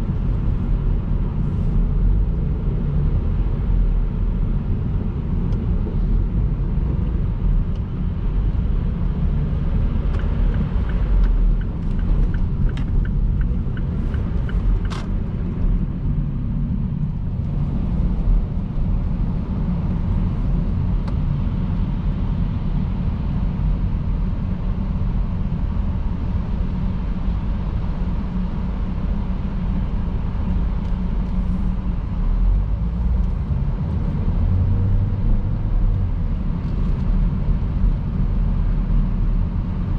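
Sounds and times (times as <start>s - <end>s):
tyres on wet road: 8.3s - 20.2s.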